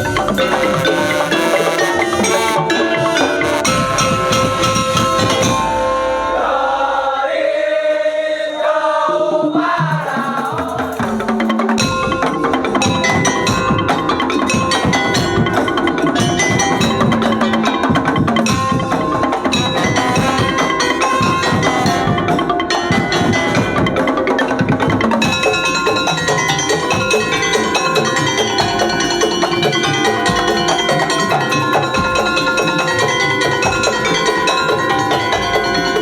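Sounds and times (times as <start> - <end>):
drums in driving rhythm: 0.0 - 6.4, 9.8 - 36.0
ringing tuned percussion: 0.0 - 7.1, 9.3 - 36.0.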